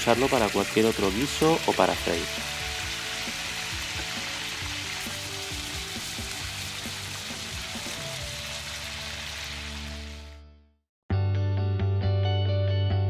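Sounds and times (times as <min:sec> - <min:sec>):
soft background music: 0:00.0 - 0:09.9
meat frying in hot oil: 0:00.0 - 0:10.3.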